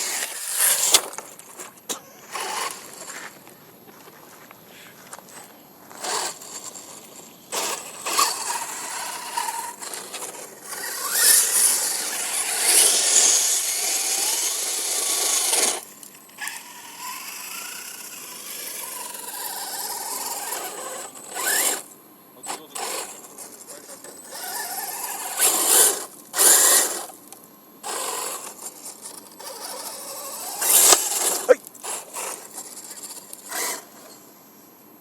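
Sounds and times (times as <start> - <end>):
toy car motor whining: 0.0 - 3.4, 5.9 - 34.2.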